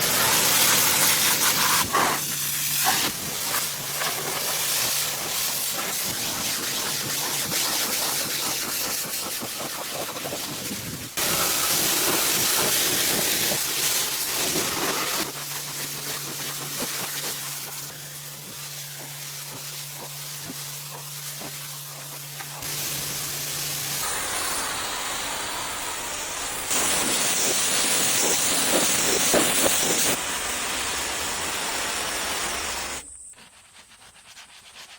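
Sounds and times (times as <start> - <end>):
steam cleaner hissing: 0.0 - 33.1
machine humming: 22.2 - 33.0.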